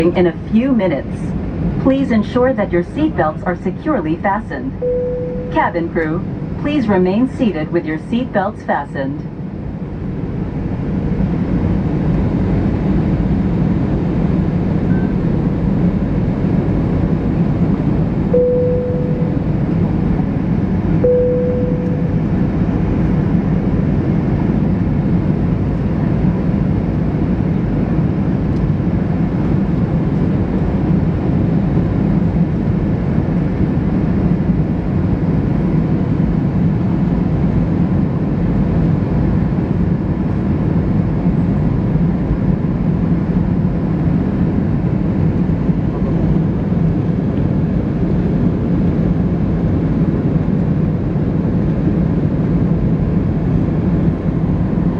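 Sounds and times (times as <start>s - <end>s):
jet engine drone: 0.0s - 54.9s
short steady tone: 4.8s - 5.8s, 18.4s - 19.6s, 21.0s - 22.4s.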